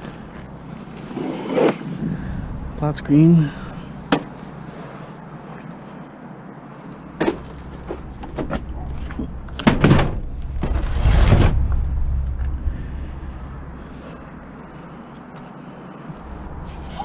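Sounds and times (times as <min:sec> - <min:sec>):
low rumble: 0:01.9 - 0:04.8, 0:07.4 - 0:15.1, 0:16.1 - 0:17.0
junk knocking and clunking: 0:07.2 - 0:13.7
heavy thuds: 0:07.2 - 0:14.8.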